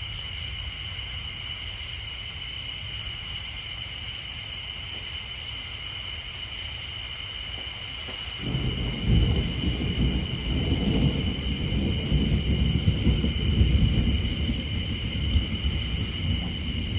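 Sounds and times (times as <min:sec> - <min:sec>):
tree frogs and insects: 0:00.0 - 0:16.9
thunder rumbling: 0:08.4 - 0:16.9.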